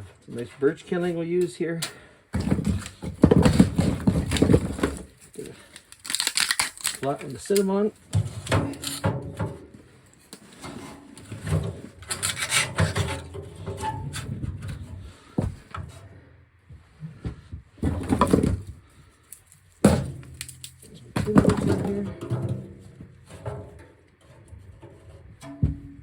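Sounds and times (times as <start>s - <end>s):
wood rubbing and scraping: 19.8s - 25.9s.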